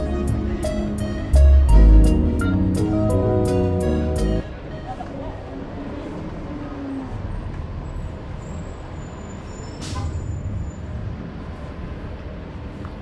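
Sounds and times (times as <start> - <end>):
rumble of street traffic: 0.0 - 13.0.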